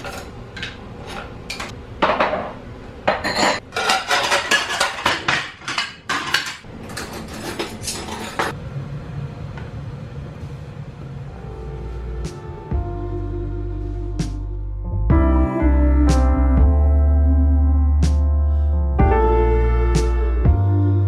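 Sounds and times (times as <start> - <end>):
dishes and cutlery clattering: 0.0 - 8.6
low steady hum: 8.6 - 21.0.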